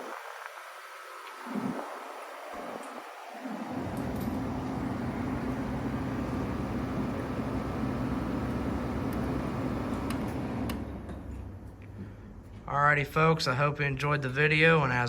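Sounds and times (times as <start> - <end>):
air conditioner running: 3.5 - 12.6.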